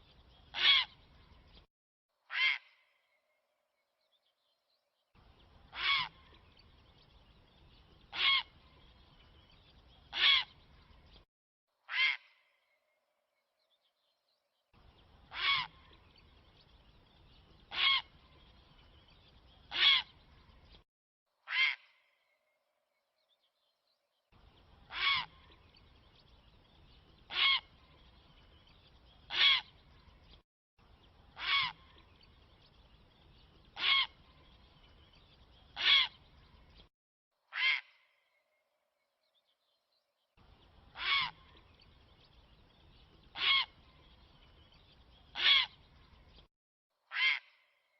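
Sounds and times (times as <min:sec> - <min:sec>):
harsh bird call: 0:45.3 - 0:45.8.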